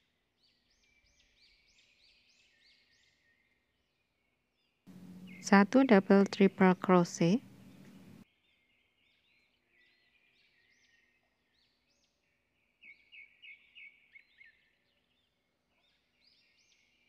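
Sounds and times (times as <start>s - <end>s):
small birds chirping: 4.9s - 11.6s.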